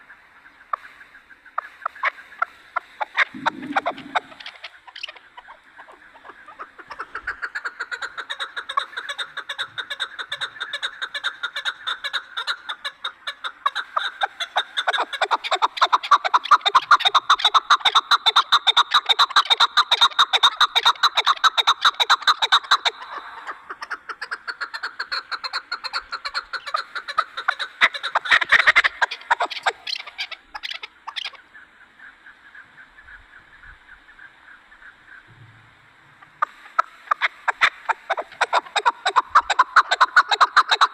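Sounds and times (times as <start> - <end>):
partridge calling rapid notes: 3.0 - 31.4, 36.4 - 40.9.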